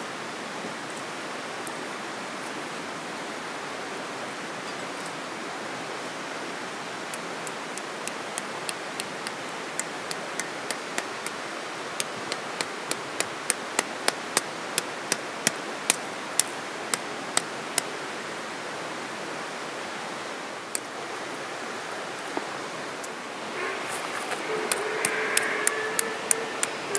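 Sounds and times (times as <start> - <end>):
stream flowing: 0.0 - 26.9
sharp taps: 7.4 - 11.4, 12.0 - 17.9.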